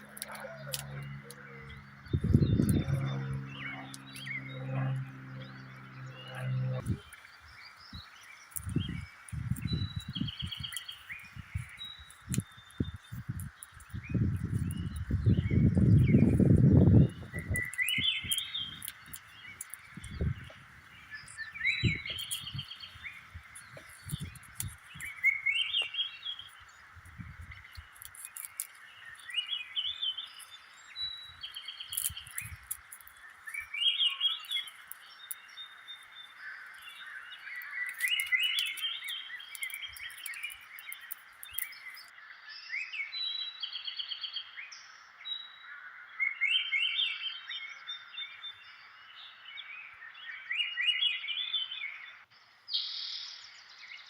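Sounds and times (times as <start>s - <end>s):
swamp background hum: 0.0s - 42.3s
birds singing chirpy phrases: 0.0s - 45.6s.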